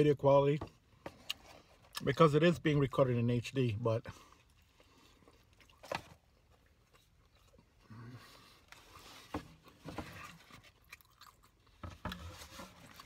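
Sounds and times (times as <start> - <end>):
person chewing food: 4.3 - 9.0, 9.6 - 13.0.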